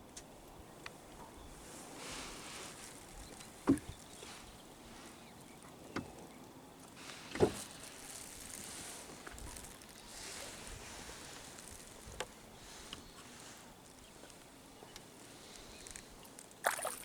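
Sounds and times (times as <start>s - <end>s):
water: 0.0s - 17.0s
wind: 0.0s - 17.0s
knocks on a boat: 3.6s - 3.9s.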